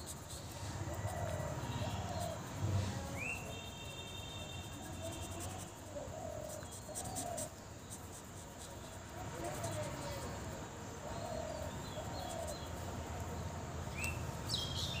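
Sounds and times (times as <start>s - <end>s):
marker scratching on paper: 0.0s - 10.5s
birds chirping: 13.9s - 15.0s.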